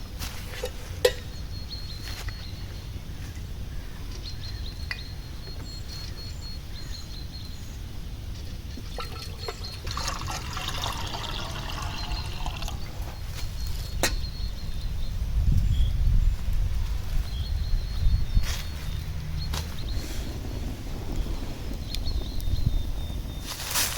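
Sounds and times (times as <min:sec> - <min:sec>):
low outdoor rumble: 0:00.0 - 0:23.9
liquid being poured: 0:08.8 - 0:13.2.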